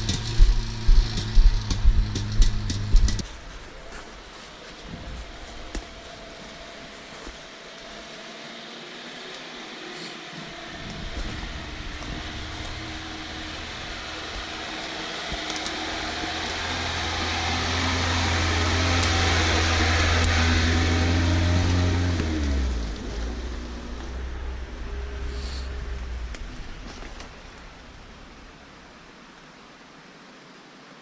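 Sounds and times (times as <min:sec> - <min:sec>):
vehicle engine humming: 0:00.0 - 0:29.5.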